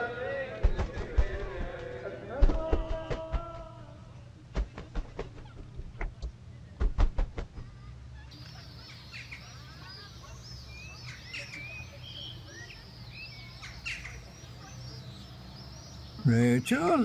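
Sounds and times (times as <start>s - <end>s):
low background hum: 0.0s - 17.0s
small birds chirping: 7.6s - 17.0s.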